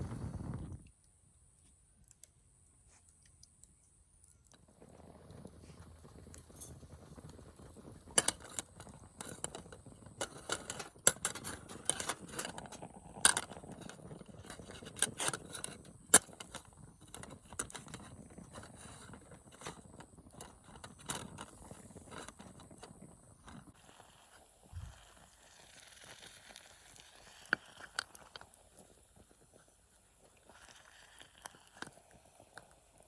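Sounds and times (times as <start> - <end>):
metal cookware clinking and scraping: 10.2 - 14.0.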